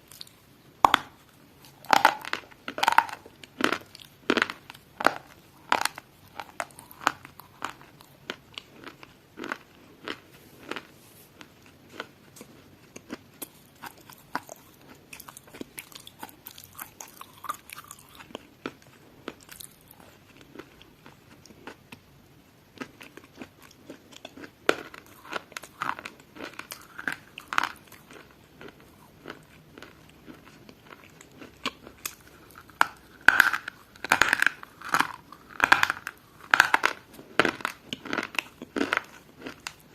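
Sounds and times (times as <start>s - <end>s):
brittle crunching and crackling: 30.8s - 39.8s.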